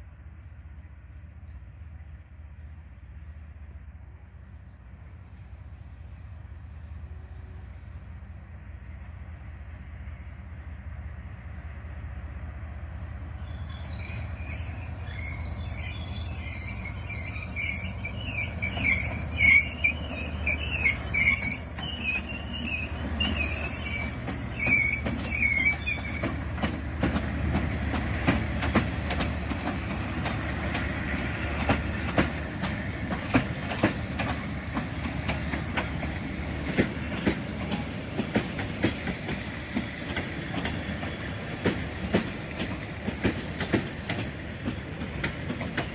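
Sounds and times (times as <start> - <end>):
diesel locomotive rumble: 0.0 - 45.9
wheel squeal: 13.5 - 26.4.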